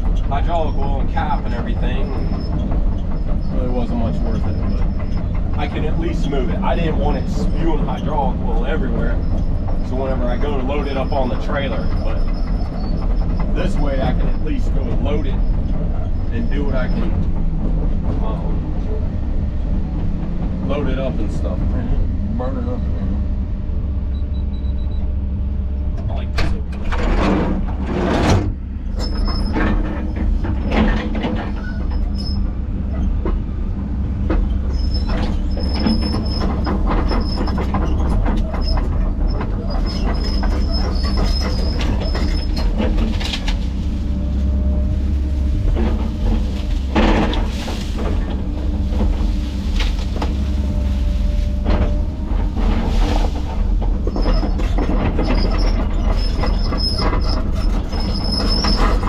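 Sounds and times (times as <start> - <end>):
knocks and clanks: 0.0 - 22.1, 25.9 - 59.0
diesel machine rumbling: 0.0 - 59.0
high metallic squeals: 0.6 - 17.2, 28.9 - 33.2, 34.4 - 59.0.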